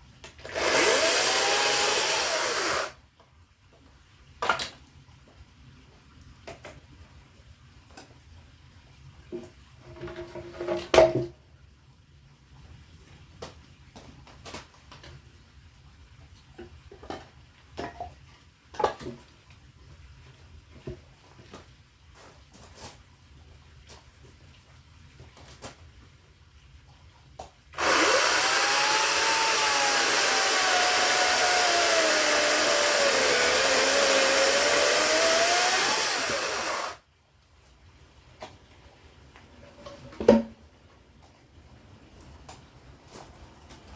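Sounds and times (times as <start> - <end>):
power saw cutting firewood: 0.4 - 3.0, 27.8 - 37.0.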